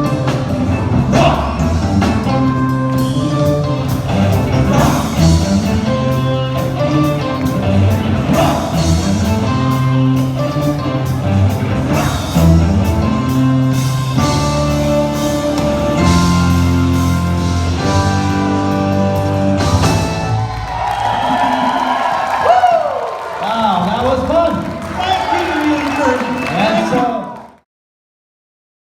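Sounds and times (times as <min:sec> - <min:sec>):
live band playing disco-rock: 0:00.0 - 0:22.4.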